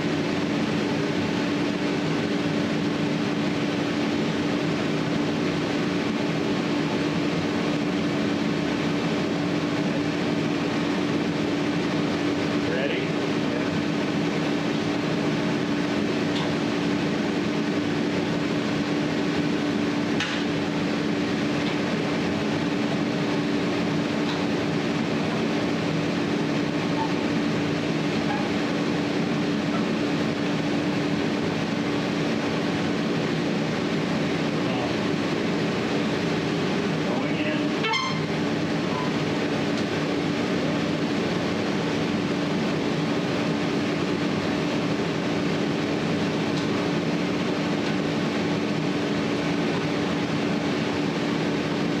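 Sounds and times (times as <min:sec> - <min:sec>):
mechanical drone with low hum: 0:00.0 - 0:52.0.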